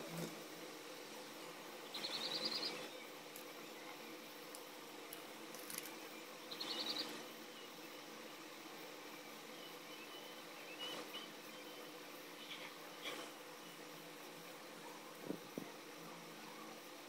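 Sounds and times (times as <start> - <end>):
faint steady hum: 0.0 - 17.0
small bird chirping: 1.8 - 4.0, 6.4 - 8.0, 9.5 - 13.8.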